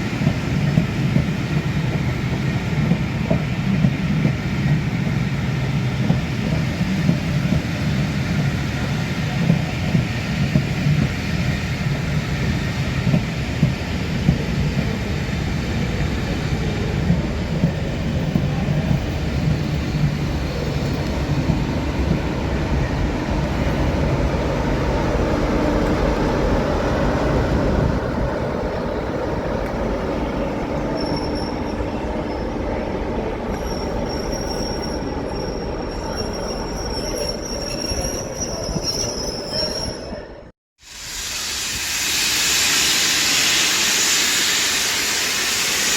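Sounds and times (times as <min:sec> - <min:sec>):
train wheels rumbling: 0:00.0 - 0:40.0
high wheel squeal: 0:30.8 - 0:32.6, 0:33.5 - 0:40.3.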